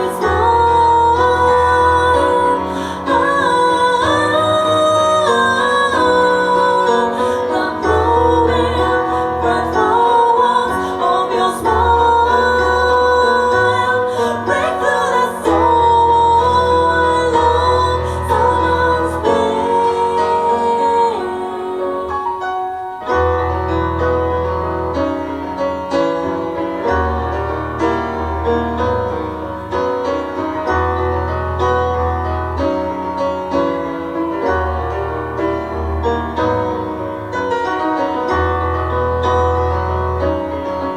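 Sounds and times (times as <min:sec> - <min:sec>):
person singing: 0:00.0 - 0:22.6
keyboard or piano: 0:00.0 - 0:40.9.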